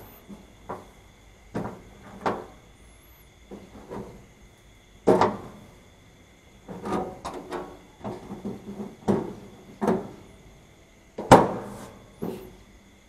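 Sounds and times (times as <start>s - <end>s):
metal panel knocks and clatters: 5.0s - 5.6s, 6.7s - 10.3s.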